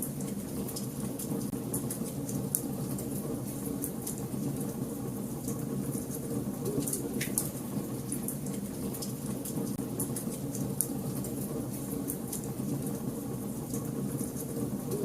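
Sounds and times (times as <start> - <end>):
low rumble of flames: 0.0 - 15.0
wood fire crackling and popping: 0.1 - 15.0.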